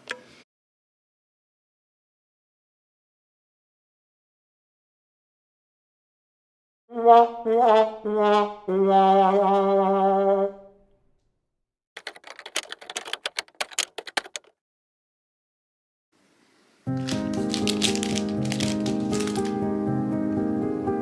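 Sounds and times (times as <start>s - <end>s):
quick run of clicks: 12.0s - 14.5s, 17.0s - 19.6s.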